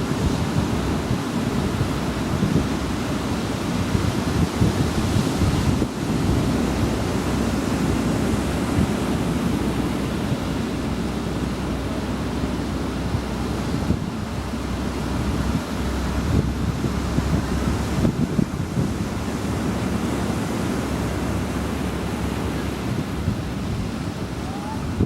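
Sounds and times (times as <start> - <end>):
surf washing onto beach: 0.0 - 25.0
wind buffeting microphone: 0.0 - 25.0.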